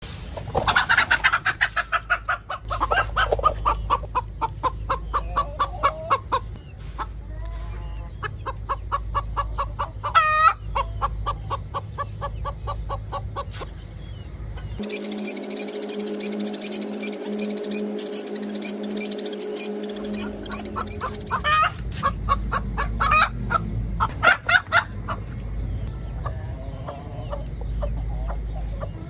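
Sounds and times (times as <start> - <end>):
hen clucking: 0.4 - 29.0
hen squawk: 14.8 - 25.2.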